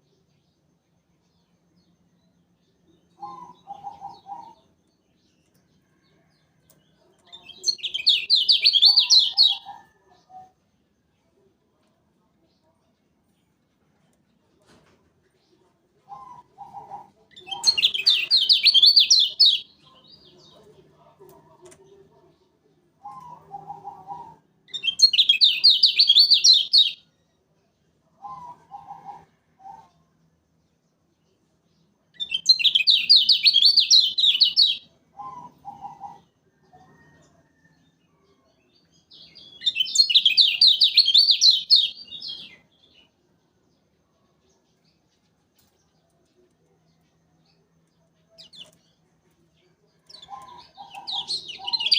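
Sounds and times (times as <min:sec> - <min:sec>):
bird chattering twitter: 0:07.3 - 0:09.7, 0:50.1 - 0:51.9.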